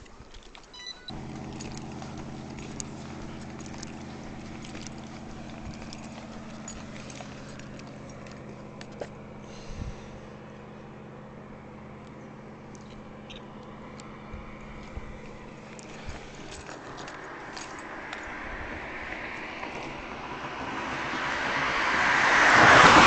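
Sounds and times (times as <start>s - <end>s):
low mechanical hum: 0.0s - 16.7s
short electronic beep: 0.7s - 1.2s.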